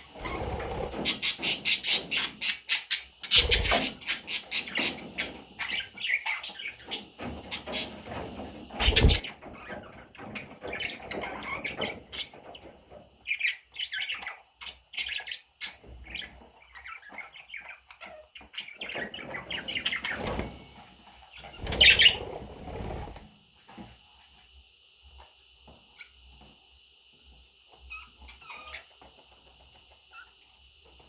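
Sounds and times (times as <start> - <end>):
budgerigar chicks chirping: 0.2 - 8.1, 8.8 - 12.5.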